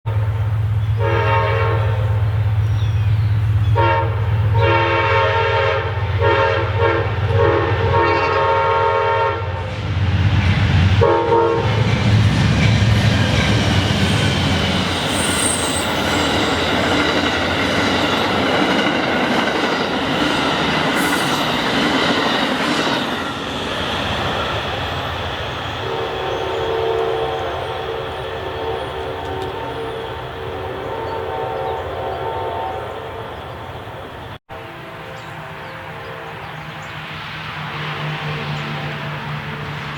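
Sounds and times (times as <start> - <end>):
train horn blasts: 0.1 - 2.4, 3.7 - 9.7, 11.0 - 11.8, 25.6 - 33.8, 34.4 - 36.9, 37.8 - 39.7
train rumbling past: 0.1 - 39.9
train wheels clickety-clack: 9.7 - 25.9.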